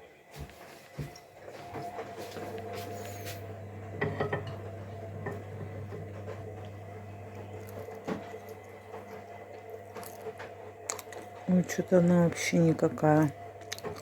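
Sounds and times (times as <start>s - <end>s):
steady low hum: 1.0s - 14.0s
kitchenware clinking and knocking: 4.0s - 5.9s.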